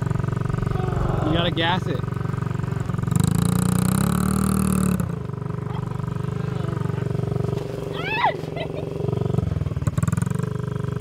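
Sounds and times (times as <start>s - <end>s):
dirt bike engine revving: 0.0s - 8.0s.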